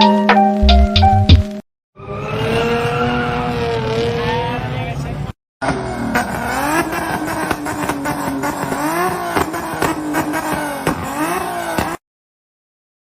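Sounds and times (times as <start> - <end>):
car engine revving: 2.0 - 12.0
exhaust pops: 5.6 - 12.0.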